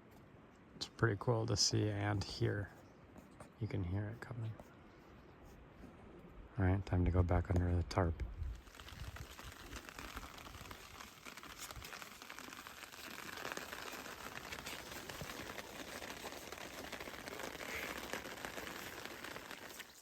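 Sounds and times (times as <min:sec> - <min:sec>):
rain falling on a tarp: 0:08.5 - 0:20.0.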